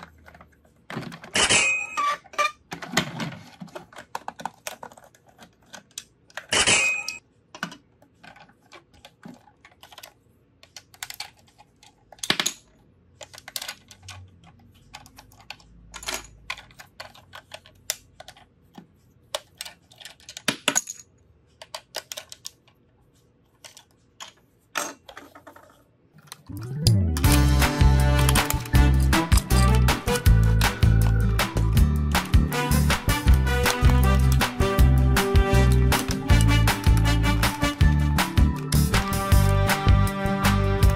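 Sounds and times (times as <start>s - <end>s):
plastic toy parts clicking and knocking: 0.0s - 22.8s, 28.1s - 31.2s, 35.8s - 37.5s.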